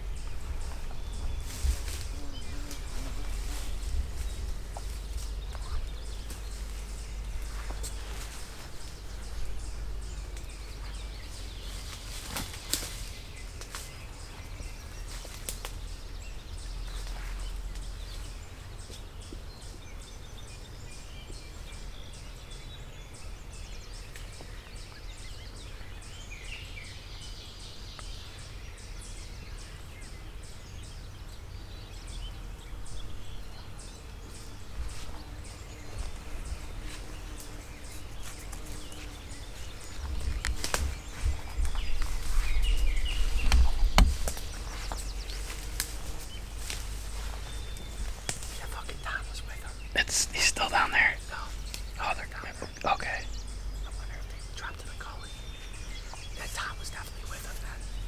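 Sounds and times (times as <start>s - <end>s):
steady low rumble: 0.0s - 12.0s
footsteps crunching dry leaves: 0.6s - 5.6s, 6.2s - 9.6s, 34.8s - 49.6s
footsteps snapping twigs: 1.5s - 9.2s, 10.2s - 15.9s, 36.0s - 49.0s, 51.5s - 52.0s
faint bird calls: 33.6s - 58.0s.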